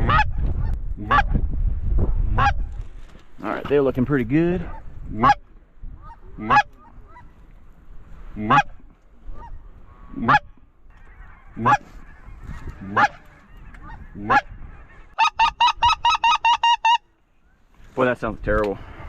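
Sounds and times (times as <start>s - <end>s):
goose call honks and clucks: 0.0s - 1.4s, 2.3s - 2.7s, 4.6s - 7.4s, 8.4s - 17.1s.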